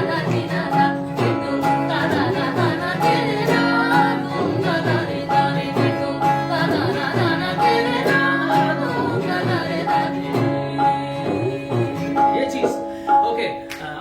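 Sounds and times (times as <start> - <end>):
held accompaniment notes: 0.0 - 14.0.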